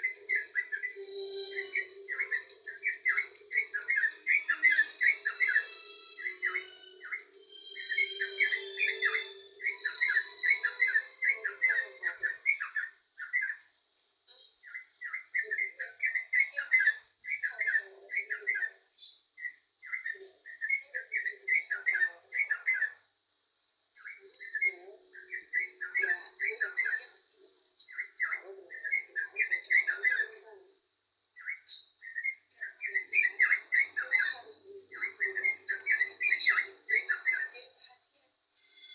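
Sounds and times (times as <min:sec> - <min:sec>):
bird warbling: 0:00.0 - 0:13.6, 0:24.0 - 0:27.2, 0:27.9 - 0:30.4, 0:31.4 - 0:37.6.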